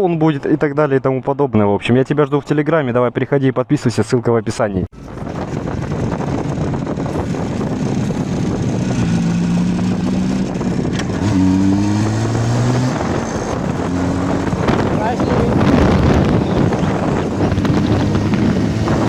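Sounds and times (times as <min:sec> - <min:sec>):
motorcycle engine running: 0:05.0 - 0:19.0
wind rushing: 0:05.0 - 0:19.0.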